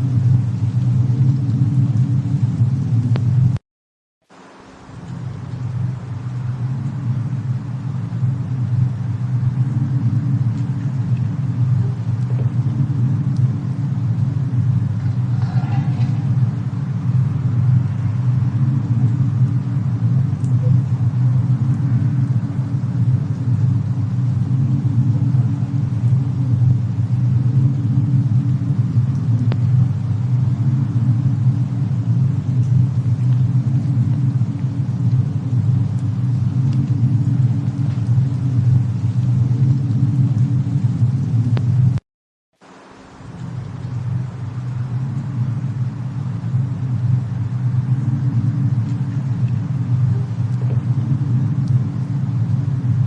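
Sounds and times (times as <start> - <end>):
faint fire crackles: 0.0 - 3.6, 4.2 - 42.0, 42.6 - 53.0
low snowstorm rumble: 0.0 - 3.6, 4.3 - 42.0, 42.6 - 53.0.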